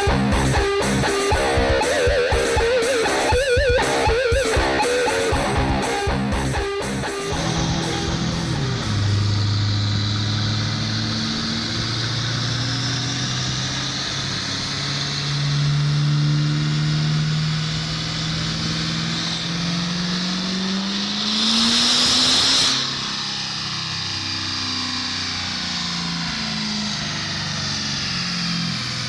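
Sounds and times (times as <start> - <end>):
diesel engine revving up: 3.8 - 29.0
loud hiss: 20.7 - 23.4.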